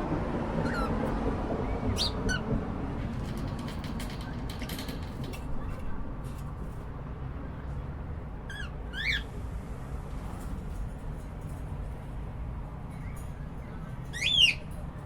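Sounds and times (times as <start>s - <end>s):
cockatiel chirps: 0.6s - 1.0s, 2.0s - 2.4s, 8.5s - 9.3s.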